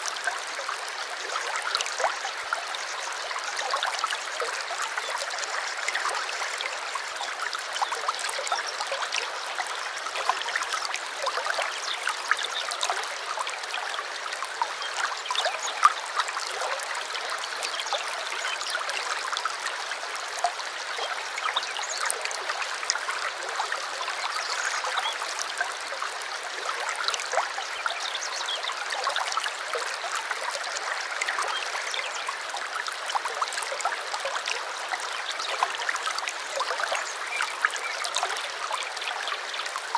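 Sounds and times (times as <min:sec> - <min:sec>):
small stream flowing: 0:00.0 - 0:39.9.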